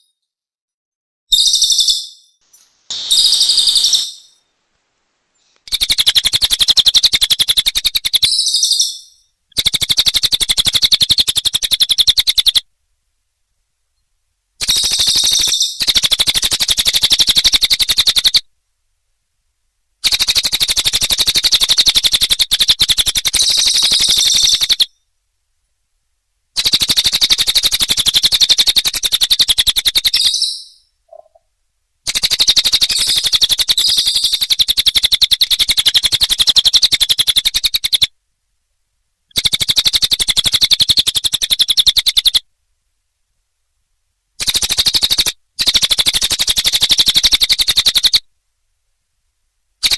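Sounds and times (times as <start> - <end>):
recorded bird trills: 1.3 - 4.5, 5.4 - 12.7, 14.6 - 18.5, 20.0 - 25.1, 26.6 - 38.1, 39.3 - 42.5, 44.4 - 48.3.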